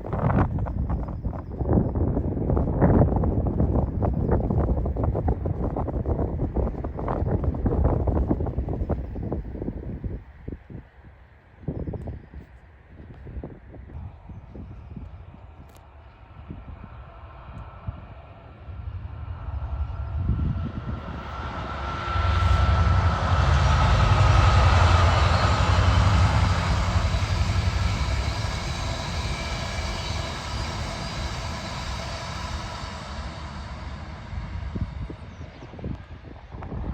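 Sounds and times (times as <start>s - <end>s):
diesel locomotive rumble: 0.0s - 10.6s, 14.0s - 36.9s
faint whine: 13.9s - 36.9s.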